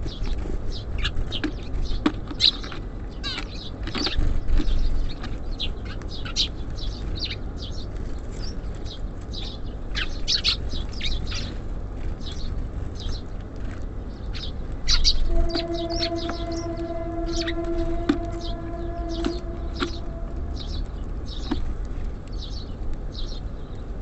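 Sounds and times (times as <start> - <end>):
songbirds chirping: 0.0 - 24.0
steady low rumble: 14.6 - 23.6.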